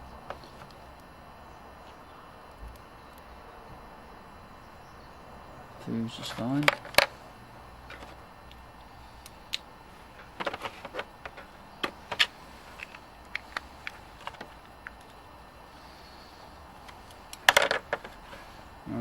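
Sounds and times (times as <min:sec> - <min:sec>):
clicks and taps of small parts: 0:10.2 - 0:15.2, 0:16.9 - 0:18.2.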